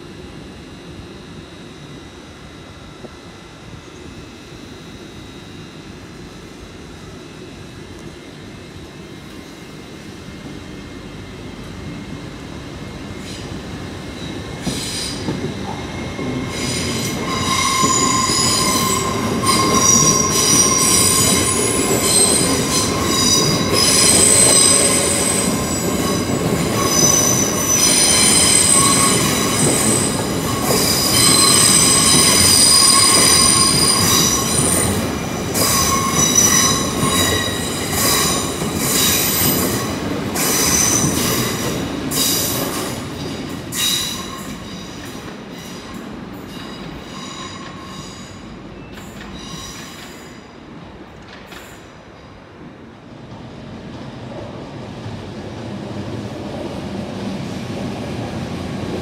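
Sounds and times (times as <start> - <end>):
train wheels squealing: 13.2 - 50.7.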